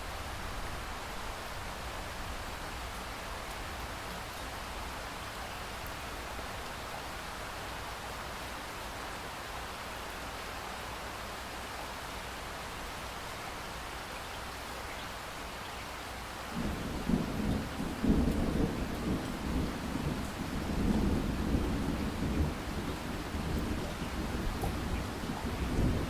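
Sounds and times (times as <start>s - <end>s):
rain hiss: 0.0s - 26.0s
rolling thunder rumble: 16.6s - 26.0s.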